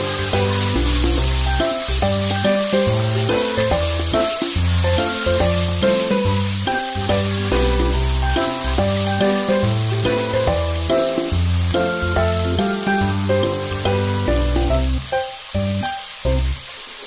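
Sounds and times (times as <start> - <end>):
background music: 0.0 - 16.6
pork sizzling in oil: 0.0 - 17.0.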